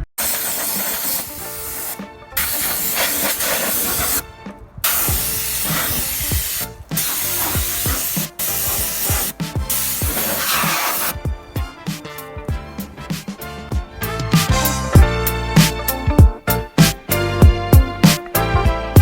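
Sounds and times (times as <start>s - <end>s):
steady hiss: 0.0s - 4.2s, 4.8s - 11.2s
music with falling bass notes: 11.1s - 19.0s.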